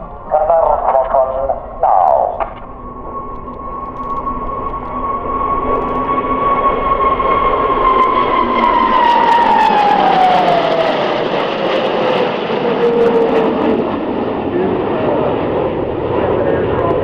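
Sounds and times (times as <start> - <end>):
jet aircraft roaring overhead: 0.0 - 17.0
jet engine whine: 0.0 - 17.0.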